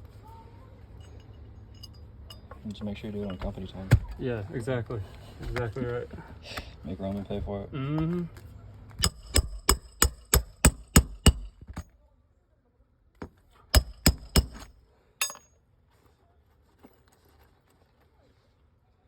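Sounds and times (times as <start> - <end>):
hammer striking metal: 9.0 - 11.6, 13.8 - 15.5.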